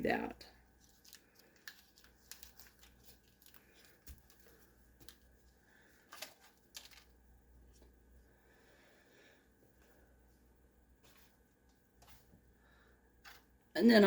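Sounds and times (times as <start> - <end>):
wrapper crinkling: 0.8 - 7.2.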